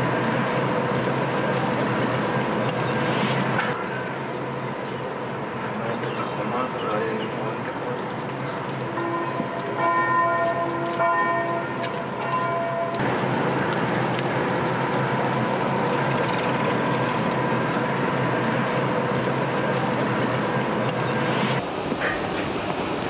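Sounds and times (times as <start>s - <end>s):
rushing outdoor noise: 0.0s - 23.0s
bells ringing: 8.9s - 13.0s.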